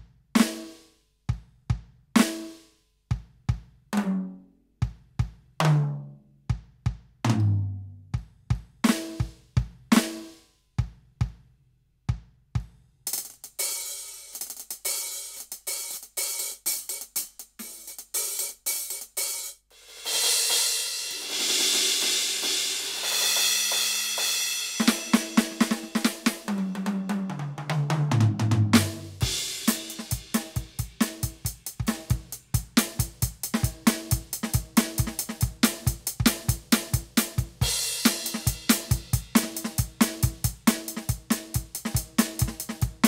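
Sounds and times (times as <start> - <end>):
electronic drum kit: 6.5 - 11.5, 12.1 - 43.0
hi-hat and cymbal strokes: 12.6 - 26.5, 29.0 - 43.0
tom fill: 19.7 - 43.0
cymbal crash: 19.8 - 25.6.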